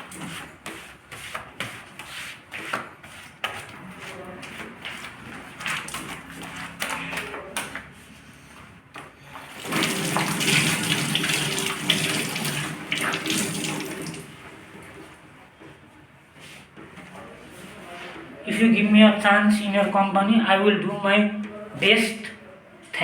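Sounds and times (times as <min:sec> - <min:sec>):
tap water running into sink: 0:09.5 - 0:14.4.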